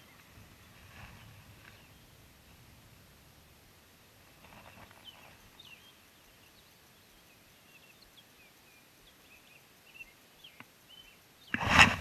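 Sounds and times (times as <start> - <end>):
soft rustle: 0.0 - 2.8, 4.1 - 6.0, 11.5 - 12.0
faint birds chirping: 0.0 - 12.0.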